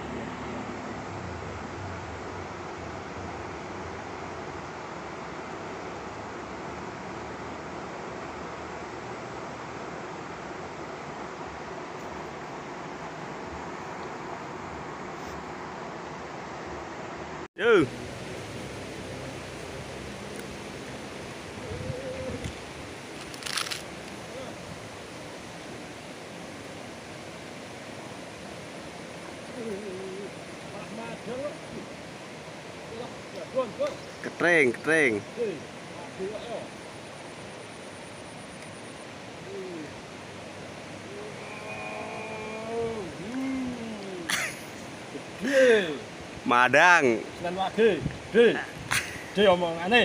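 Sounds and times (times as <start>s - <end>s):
river water rushing: 0.0s - 50.0s
faint drawn-out call: 20.3s - 24.8s, 28.7s - 46.1s
brief rustle: 23.2s - 24.2s.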